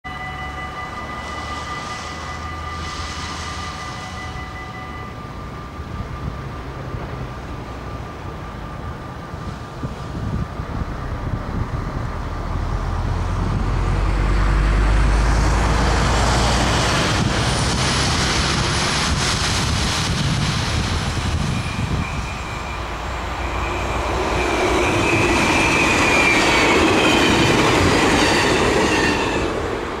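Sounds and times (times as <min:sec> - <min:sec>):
electric train passing: 0:00.1 - 0:30.0
wind buffeting microphone: 0:08.8 - 0:22.6
high wavering whine: 0:18.0 - 0:28.2.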